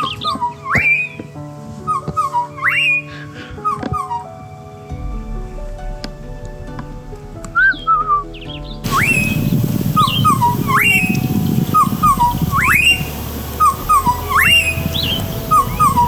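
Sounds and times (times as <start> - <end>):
bird whistled call: 7.7 - 16.0.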